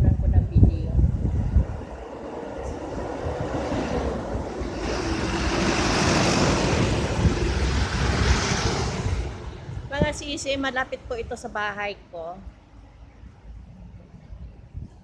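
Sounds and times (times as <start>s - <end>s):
wind rumbling on microphone: 0.0s - 11.7s, 13.1s - 15.0s
vehicle passing by: 2.6s - 10.1s.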